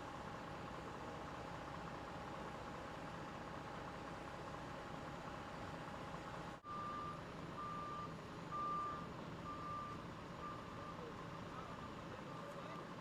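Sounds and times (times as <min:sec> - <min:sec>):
reversing alarm beeping: 0:06.6 - 0:11.1.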